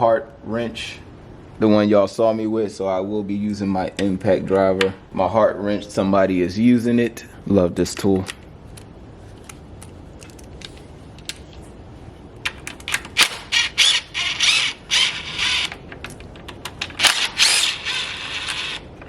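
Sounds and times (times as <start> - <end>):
impact driver bursts: 12.9 - 15.8, 16.9 - 18.8.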